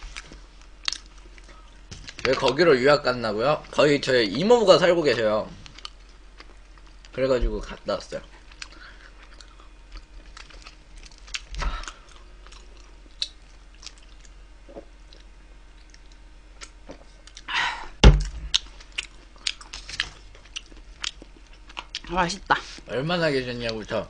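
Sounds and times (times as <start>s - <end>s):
chewing and crunching food: 0.0s - 2.6s, 5.1s - 17.5s, 18.2s - 22.9s
sharp thump: 18.0s - 18.5s.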